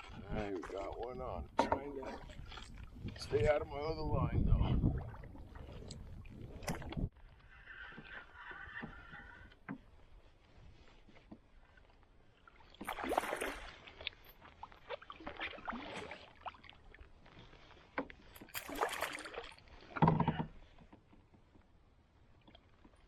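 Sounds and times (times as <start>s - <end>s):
water splashing beside canoe: 0.0s - 3.7s, 4.5s - 23.0s.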